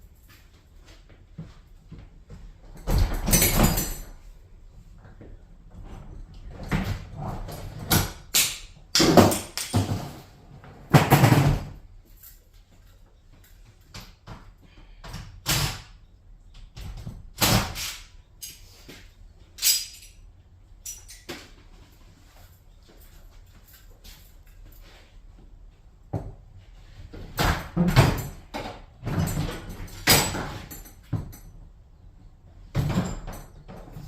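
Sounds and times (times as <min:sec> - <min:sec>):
garage door knocks and bangs: 0:09.0 - 0:10.3, 0:10.9 - 0:11.8, 0:16.8 - 0:17.8, 0:27.3 - 0:31.4, 0:32.7 - 0:34.0.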